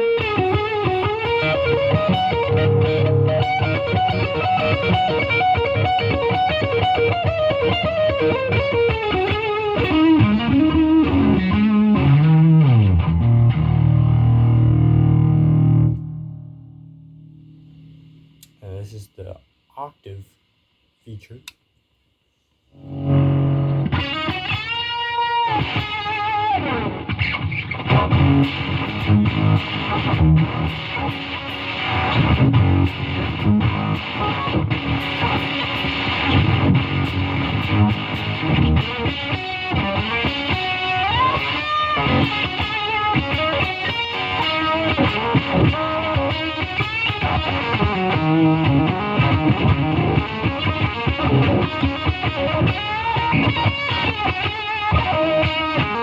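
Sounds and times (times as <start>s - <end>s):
fuzzy distorted electric guitar: 0.0s - 20.3s, 22.7s - 56.0s.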